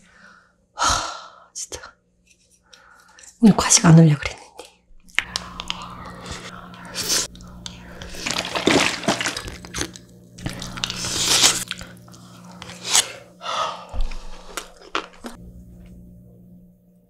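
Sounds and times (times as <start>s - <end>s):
chewing and crunching food: 4.2s - 15.4s.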